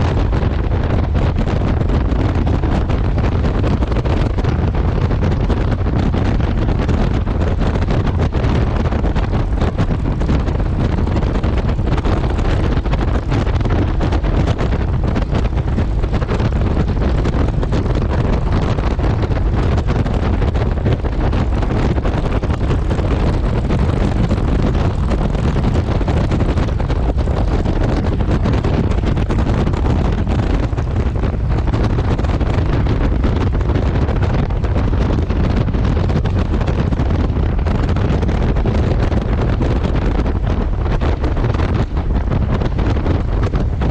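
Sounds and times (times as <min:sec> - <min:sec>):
road noise: 0:00.0 - 0:43.9
wind rushing over microphone: 0:00.0 - 0:43.9
motorcycle engine: 0:08.7 - 0:33.6.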